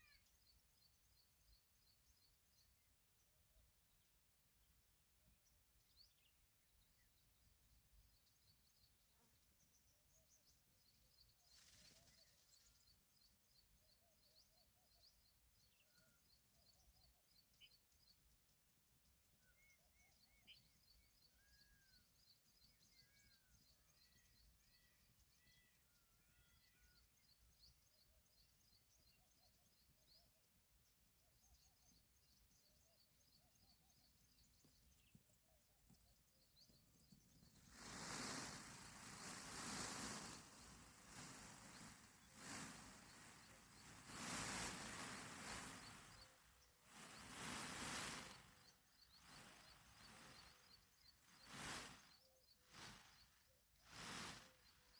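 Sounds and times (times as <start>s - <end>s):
small birds chirping: 0.0s - 54.9s
brief rustle of wind: 37.3s - 54.9s.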